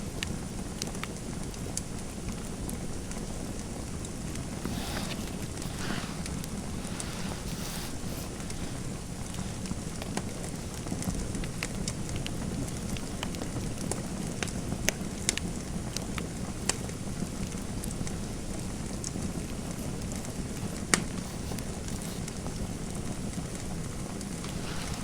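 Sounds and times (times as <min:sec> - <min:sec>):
fireplace fire crackling: 0:03.9 - 0:25.0.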